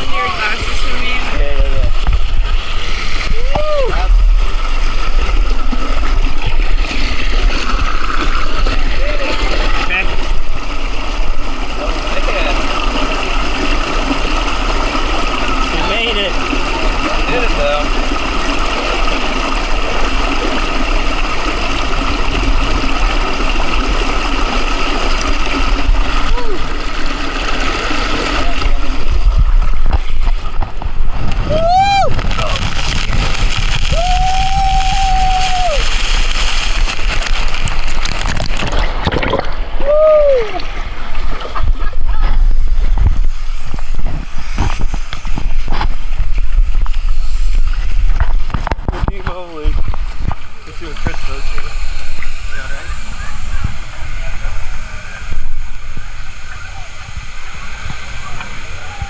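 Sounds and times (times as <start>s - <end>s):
low rumble: 0.0s - 11.8s, 18.0s - 59.0s
water rushing: 0.0s - 59.0s
wind buffeting microphone: 28.9s - 59.0s.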